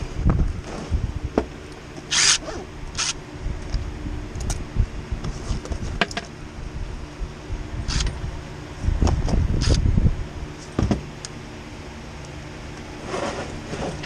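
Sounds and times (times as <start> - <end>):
box fan humming: 0.0 - 14.0
scraping and rustling: 13.0 - 14.0.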